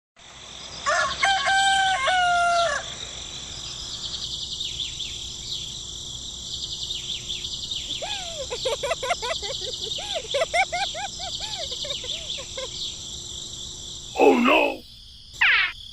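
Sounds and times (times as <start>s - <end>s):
rooster crowing: 0.8s - 2.9s
small birds chirping: 3.6s - 15.9s.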